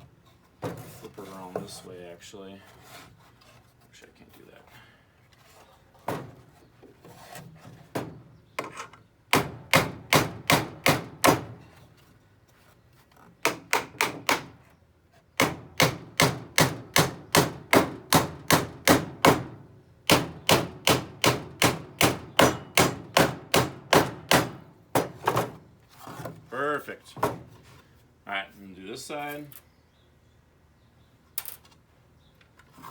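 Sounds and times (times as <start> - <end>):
hammer driving nails into wood: 9.3 - 11.6, 13.4 - 14.6, 15.4 - 25.6.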